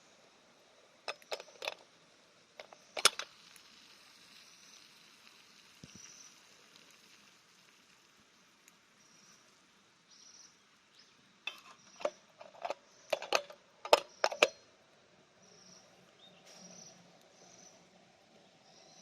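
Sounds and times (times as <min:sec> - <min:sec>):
campfire crackling and popping: 0:01.0 - 0:09.8.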